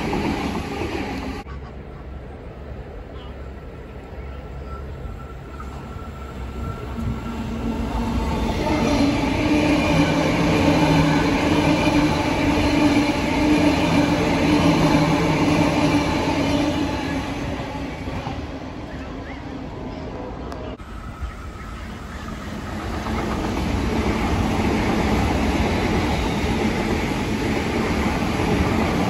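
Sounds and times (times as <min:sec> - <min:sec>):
passenger train passing: 0:00.0 - 0:29.0.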